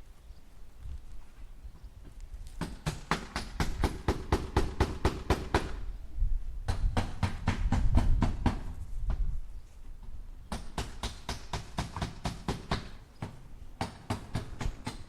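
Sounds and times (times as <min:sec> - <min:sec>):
hammer striking nails into wood: 0:02.6 - 0:05.8, 0:06.7 - 0:08.6, 0:10.5 - 0:15.0.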